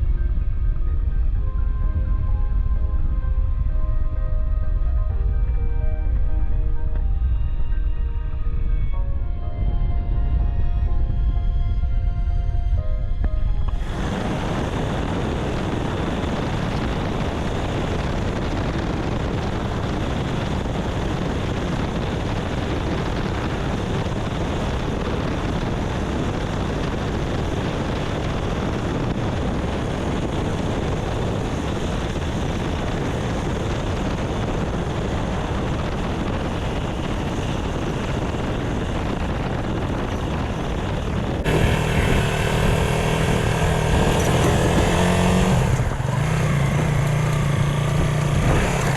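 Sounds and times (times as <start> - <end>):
steady rushing noise: 0.0 - 48.9
motorcycle engine running: 13.6 - 48.9.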